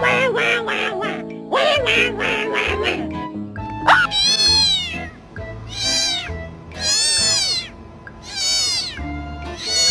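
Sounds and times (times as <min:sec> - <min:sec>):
background music: 0:00.0 - 0:09.9
cat meowing: 0:03.8 - 0:09.9.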